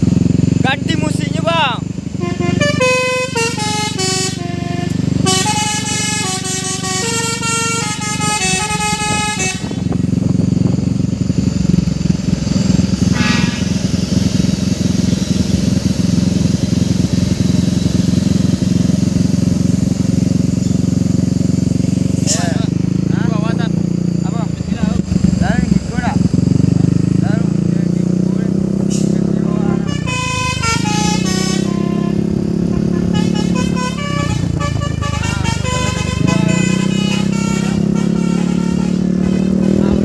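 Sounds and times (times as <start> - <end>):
heavy vehicle engine running: 0.0 - 40.0
truck musical horn tune: 2.0 - 10.7, 12.6 - 22.4, 28.9 - 40.0
short horn note: 2.2 - 9.9, 13.0 - 14.0, 29.7 - 40.0.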